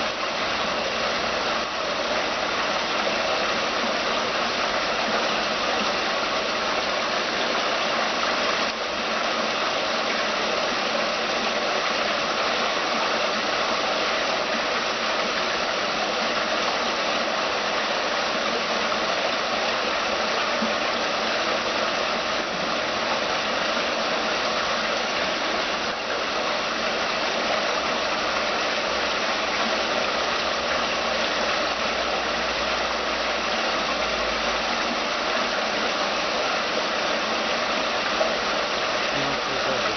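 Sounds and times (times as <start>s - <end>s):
water splashing down fountain: 37.8s - 39.9s.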